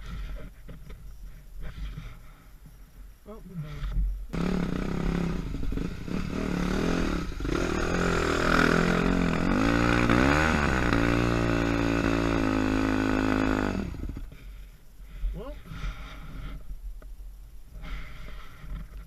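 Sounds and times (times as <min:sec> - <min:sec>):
dirt bike engine revving: 0:04.3 - 0:14.3.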